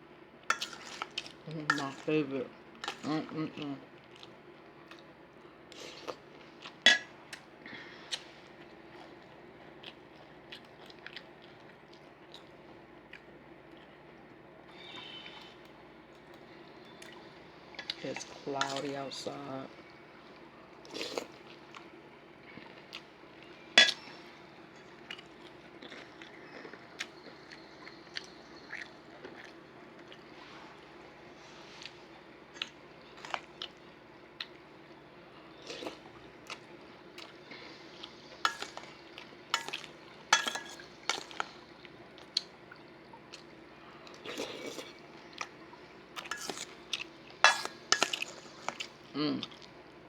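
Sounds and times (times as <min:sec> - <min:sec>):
crunching and chewing cereal: 0:00.5 - 0:02.2, 0:05.7 - 0:18.9, 0:20.7 - 0:34.6, 0:35.2 - 0:49.8.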